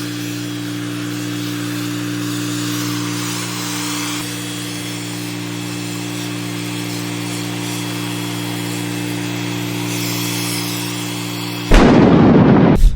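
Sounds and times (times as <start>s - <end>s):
pressure washer machine hum: 0.0s - 10.0s.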